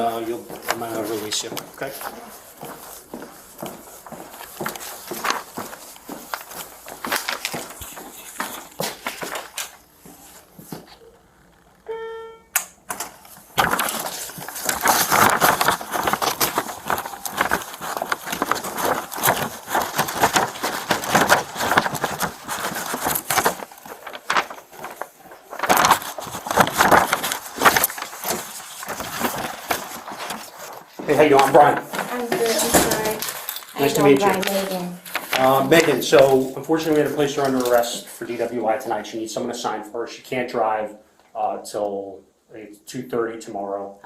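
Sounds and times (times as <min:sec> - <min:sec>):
microphone rustling against clothing: 0:00.0 - 0:11.1, 0:13.2 - 0:36.5
footsteps: 0:00.0 - 0:12.0, 0:12.9 - 0:38.5
short electronic beep: 0:11.9 - 0:12.6.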